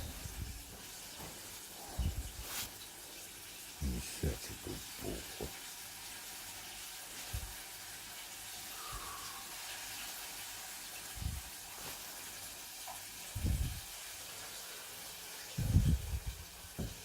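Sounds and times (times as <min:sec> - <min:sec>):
food sizzling in a pan: 0:00.0 - 0:15.6
dull low thumps: 0:13.4 - 0:13.8, 0:15.6 - 0:17.0.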